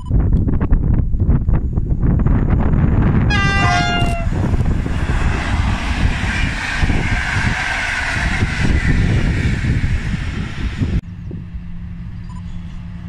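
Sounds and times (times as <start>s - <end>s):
train rumbling on rails: 1.4s - 13.0s
locomotive horn: 3.3s - 9.8s.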